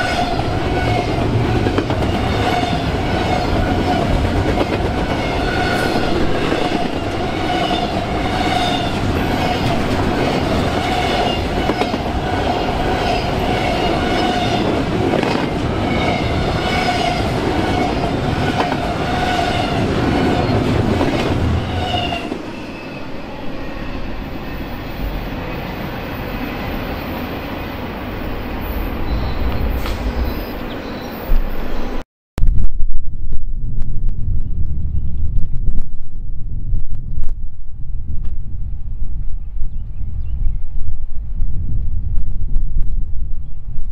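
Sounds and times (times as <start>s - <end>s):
train rumble: 0.0s - 32.0s
train wheels clickety-clack: 0.9s - 12.2s, 13.4s - 22.4s.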